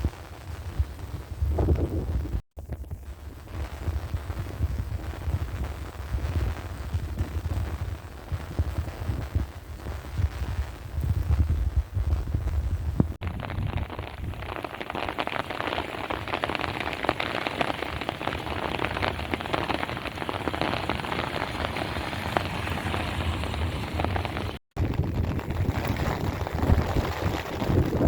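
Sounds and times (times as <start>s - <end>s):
low rumble: 1.4s - 14.4s
heavy rain falling: 13.2s - 28.0s.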